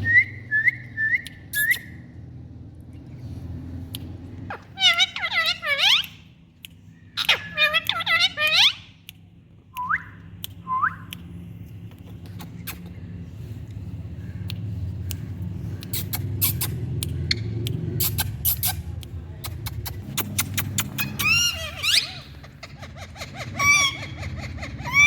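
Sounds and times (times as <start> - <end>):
sharp clicks: 14.4 - 21.5
parrot whistling: 20.6 - 22.3, 23.4 - 25.0.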